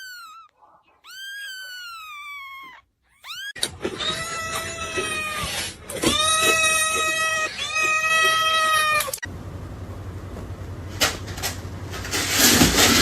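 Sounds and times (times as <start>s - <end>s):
background noise: 0.0s - 3.6s
cat meowing and yowling: 0.0s - 9.2s.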